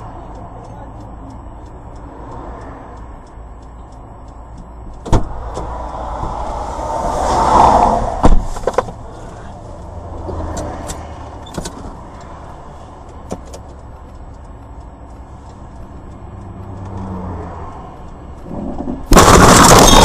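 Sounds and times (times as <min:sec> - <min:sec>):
faint clicks: 0:00.0 - 0:07.7
car engine and road rumble: 0:00.0 - 0:20.0
loud harsh noise: 0:19.1 - 0:20.0.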